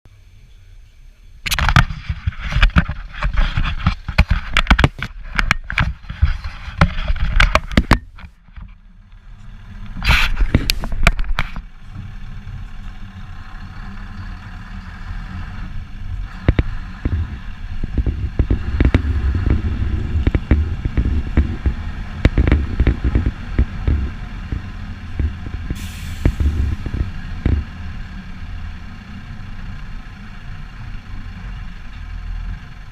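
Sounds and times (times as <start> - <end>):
diesel truck engine rumbling: 0.1 - 32.9
loud noisy burst: 15.5 - 28.0
sharp cracks and knocks: 16.4 - 27.7.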